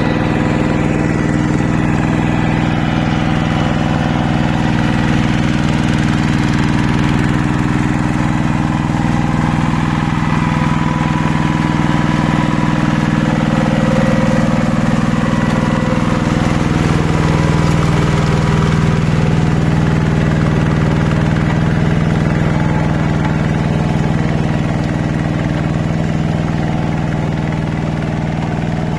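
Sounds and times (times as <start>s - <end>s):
hand tractor engine running: 0.0s - 28.9s.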